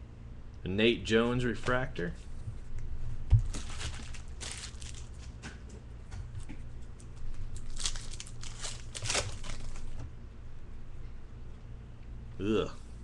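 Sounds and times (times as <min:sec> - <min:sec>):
low steady hum: 0:00.0 - 0:13.0
cards and wrapper crinkling: 0:03.4 - 0:05.4, 0:07.0 - 0:10.0.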